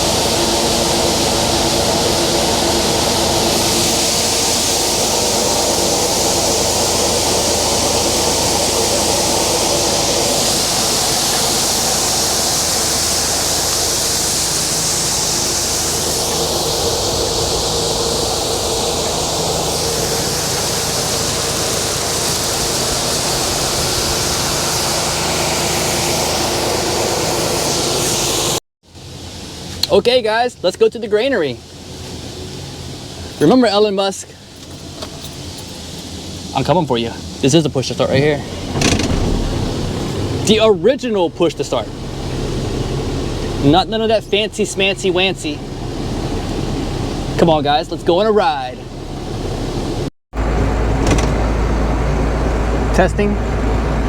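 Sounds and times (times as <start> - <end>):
diesel engine drone: 0.0 - 30.2, 30.8 - 54.0
unloading auger running: 38.1 - 40.5.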